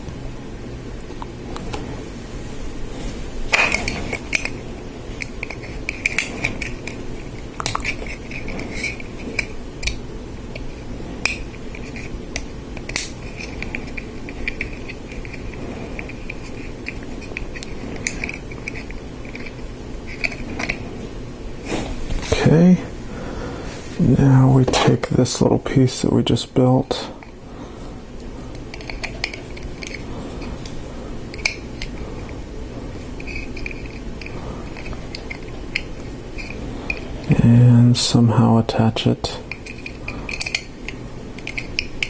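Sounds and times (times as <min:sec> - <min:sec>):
plastic parts clicking and rattling: 0:07.6 - 0:20.8, 0:28.7 - 0:30.0, 0:39.5 - 0:42.0.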